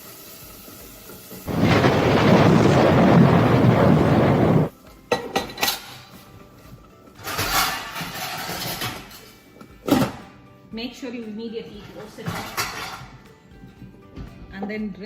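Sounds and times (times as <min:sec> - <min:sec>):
batter sizzling in hot oil: 0:00.0 - 0:03.2.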